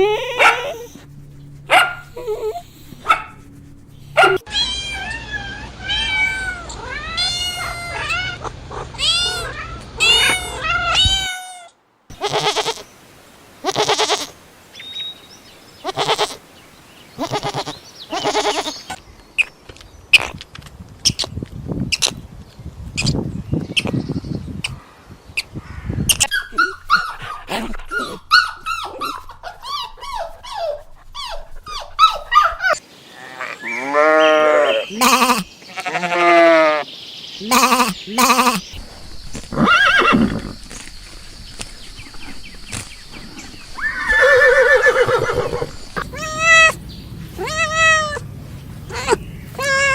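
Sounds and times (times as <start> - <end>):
long pitched animal calls: 43.8 - 49.9.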